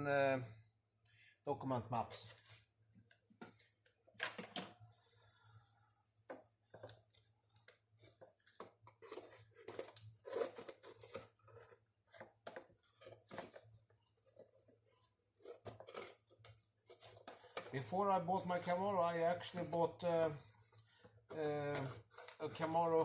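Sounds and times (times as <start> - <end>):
paper and objects rustling: 2.2 - 4.8, 5.6 - 23.0.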